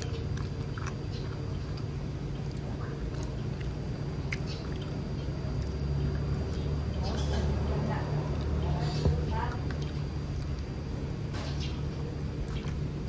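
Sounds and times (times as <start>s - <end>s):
mouth clicks while chewing: 0.0s - 7.4s, 12.4s - 12.9s
low background hum: 0.0s - 13.0s.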